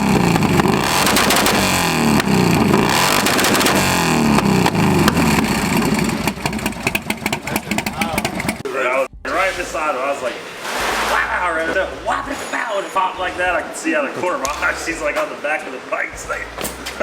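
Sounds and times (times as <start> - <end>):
exhaust crackling pops: 0.0 - 8.6
motorcycle engine revving: 0.0 - 9.2.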